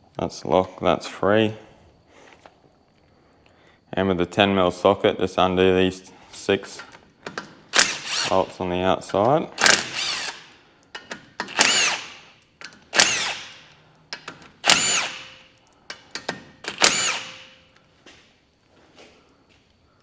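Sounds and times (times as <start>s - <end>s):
power drill turning bolts: 7.3s - 17.7s.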